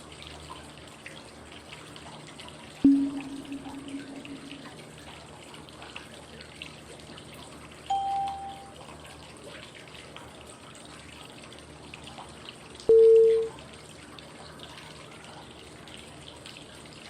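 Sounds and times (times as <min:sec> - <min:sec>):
flowing water: 0:00.0 - 0:17.0
water drips and trickles: 0:00.0 - 0:17.0
short chime tone: 0:02.8 - 0:04.5, 0:07.9 - 0:08.8, 0:12.9 - 0:13.5.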